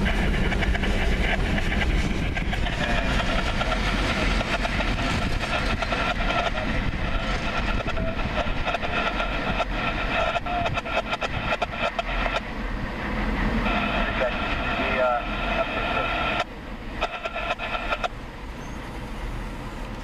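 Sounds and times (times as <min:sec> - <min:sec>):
steel wheels squealing: 0:00.0 - 0:12.3, 0:17.0 - 0:19.2
freight train rolling past: 0:00.0 - 0:20.0.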